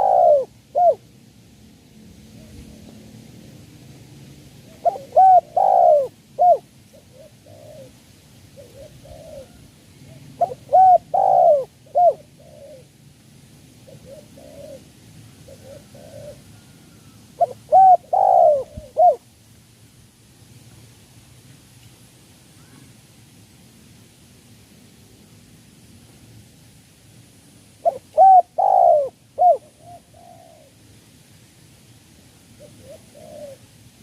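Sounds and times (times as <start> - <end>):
dove cooing: 0.0 - 1.0, 4.6 - 13.0, 13.8 - 19.2, 27.8 - 30.8, 32.6 - 33.8.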